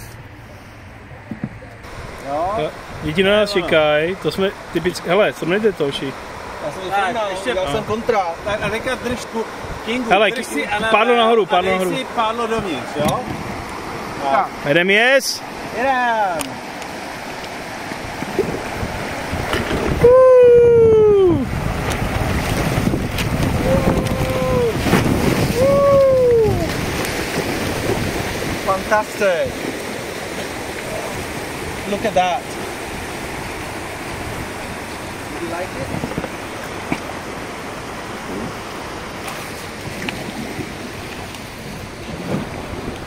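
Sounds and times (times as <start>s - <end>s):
rushing white water: 0.0s - 43.0s
wind buffeting microphone: 16.6s - 43.0s
person whooping: 20.0s - 21.5s, 23.6s - 24.8s, 25.5s - 26.8s.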